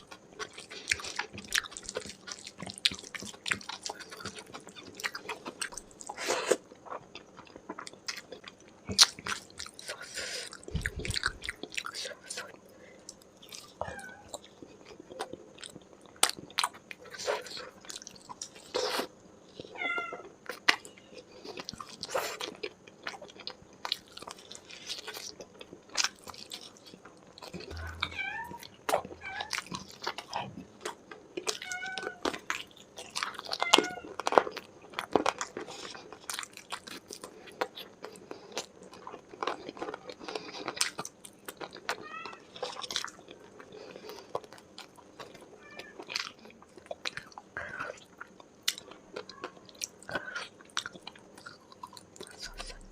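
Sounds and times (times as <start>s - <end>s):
chewing and biting food: 0.0s - 19.7s, 20.4s - 52.9s
high-pitched squeaks: 27.6s - 28.7s.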